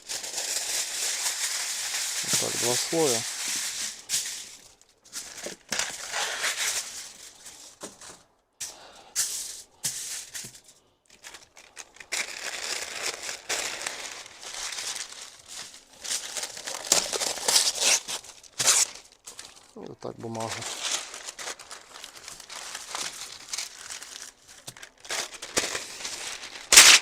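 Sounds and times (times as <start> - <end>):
aluminium foil crinkling: 0.0 - 27.0.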